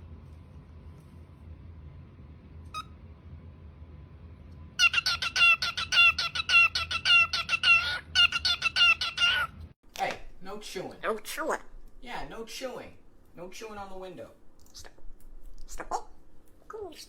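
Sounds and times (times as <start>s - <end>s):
parrot calling: 4.8s - 9.6s.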